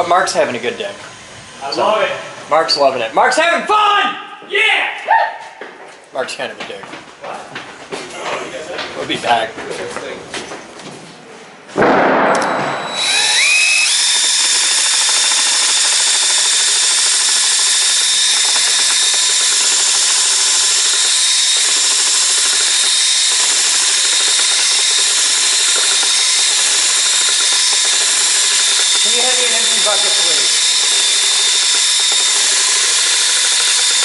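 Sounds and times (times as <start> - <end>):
power tool motor spinning: 12.8 - 34.0.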